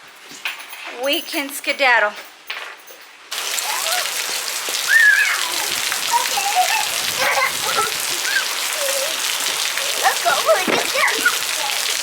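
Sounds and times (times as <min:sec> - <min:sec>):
heavy rain falling: 0:03.3 - 0:12.0.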